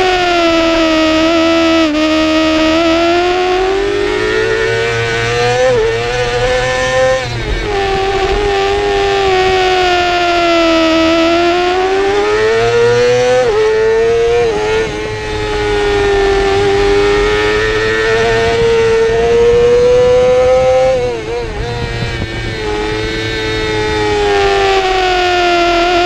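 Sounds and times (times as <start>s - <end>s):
motorcycle engine at high revs: 0.0s - 26.0s
wind rushing: 13.5s - 24.6s.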